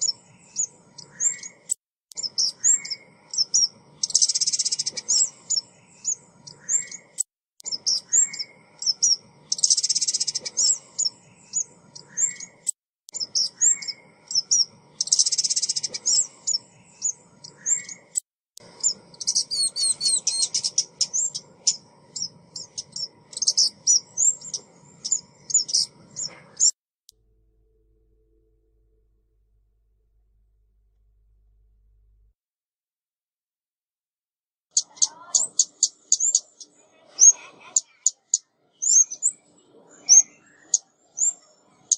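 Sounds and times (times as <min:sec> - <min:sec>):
bird chirping and trilling: 0:00.0 - 0:26.8, 0:34.7 - 0:41.9
buzzy bird call: 0:18.8 - 0:26.7.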